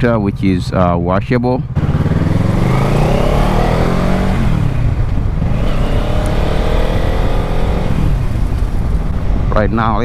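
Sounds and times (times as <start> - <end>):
low rumble: 1.2 - 10.0
motorcycle engine revving: 1.6 - 9.5.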